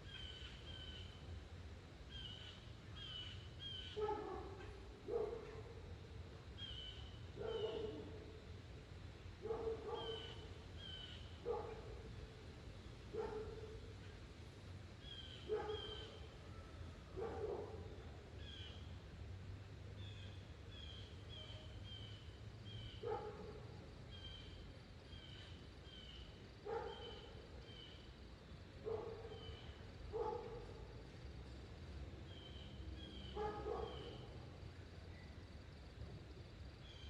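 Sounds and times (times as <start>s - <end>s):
dog barking: 4.0s - 5.8s, 7.4s - 8.2s, 9.4s - 10.4s, 11.4s - 12.0s, 13.1s - 13.7s, 15.5s - 16.2s, 17.2s - 17.9s, 23.0s - 23.7s, 26.6s - 27.3s, 28.8s - 29.5s, 30.1s - 30.9s, 33.4s - 34.2s.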